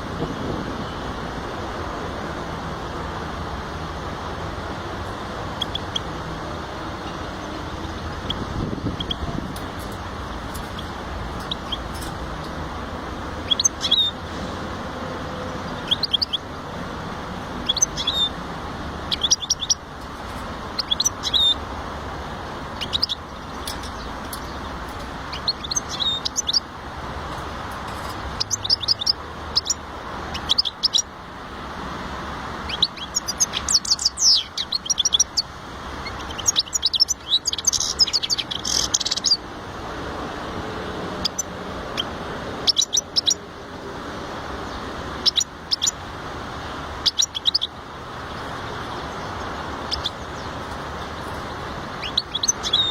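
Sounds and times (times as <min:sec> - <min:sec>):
goldfinch twittering song: 0:04.7 - 0:06.3, 0:06.9 - 0:14.2, 0:15.5 - 0:16.7, 0:17.4 - 0:21.8, 0:22.6 - 0:31.2, 0:32.6 - 0:39.5, 0:41.1 - 0:43.5, 0:44.6 - 0:46.1, 0:46.9 - 0:52.9.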